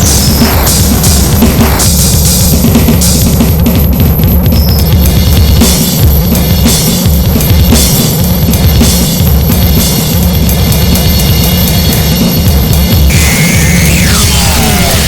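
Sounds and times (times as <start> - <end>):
pounding drums: 0.0 - 15.0
distorted electronic noise: 13.1 - 15.0.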